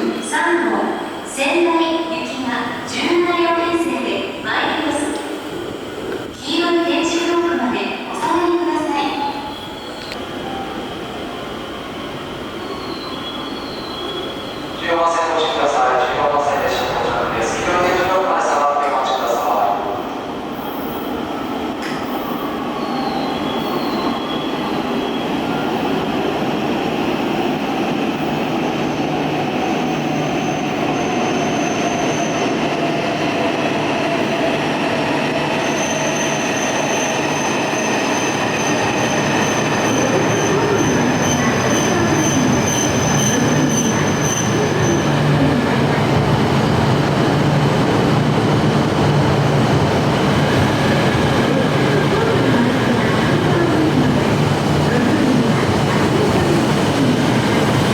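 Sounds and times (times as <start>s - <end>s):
train rumbling: 2.2s - 57.9s
high wheel squeal: 12.6s - 14.7s.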